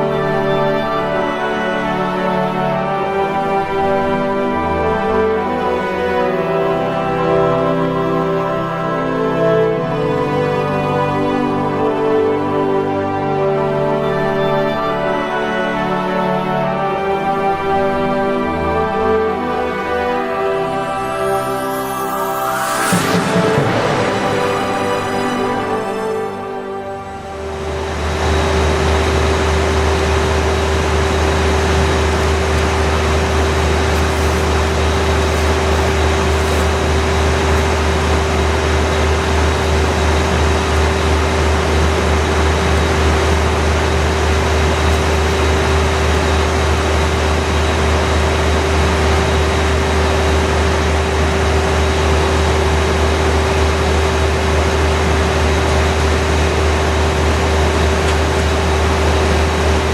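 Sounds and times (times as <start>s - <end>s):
deep machinery hum: 0.0s - 59.9s
steady whine: 0.0s - 59.9s
even mechanical noise: 17.4s - 59.9s.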